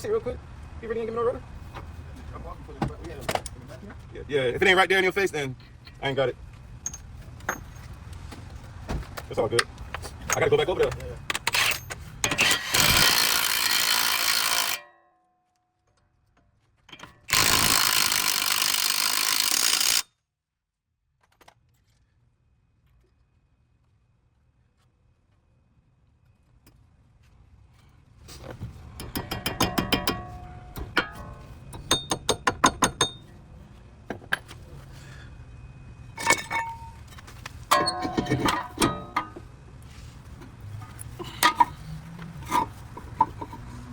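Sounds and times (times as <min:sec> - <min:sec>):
metal tools clinking: 0:11.5 - 0:14.9, 0:36.2 - 0:39.5, 0:40.8 - 0:43.7
power tool bursts: 0:12.3 - 0:14.8, 0:17.3 - 0:20.0
short metallic ring: 0:37.7 - 0:39.4.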